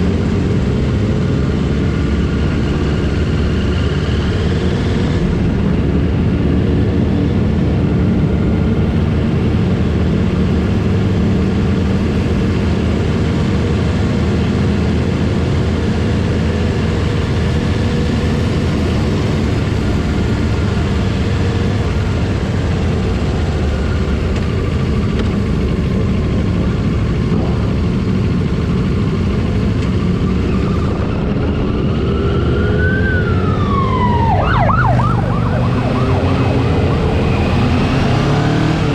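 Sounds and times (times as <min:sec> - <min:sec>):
motorcycle engines running: 0:00.0 - 0:38.9
police siren wailing and yelping: 0:31.9 - 0:38.9.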